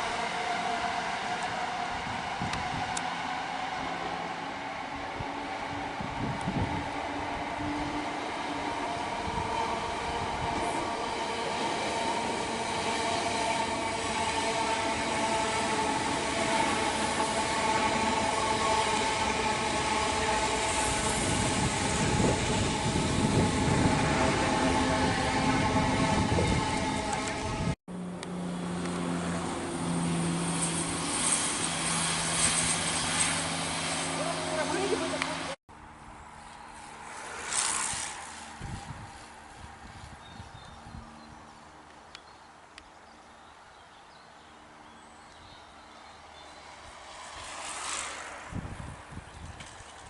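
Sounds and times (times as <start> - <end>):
train wheels rumbling on rails: 0.0 - 27.8
passenger train whine: 0.0 - 41.4, 46.2 - 50.0.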